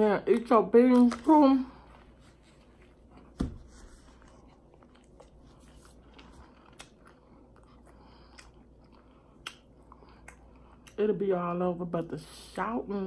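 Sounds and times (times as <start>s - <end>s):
wet chewing sounds: 4.2s - 11.1s.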